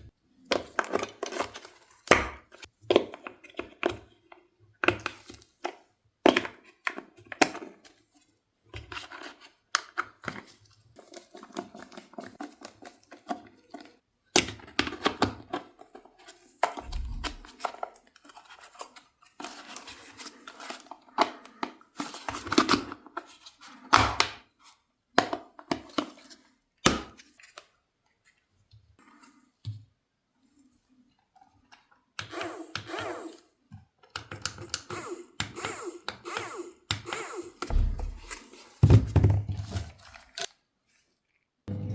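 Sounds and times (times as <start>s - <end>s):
cardboard and plastic knocks: 37.7s - 39.7s.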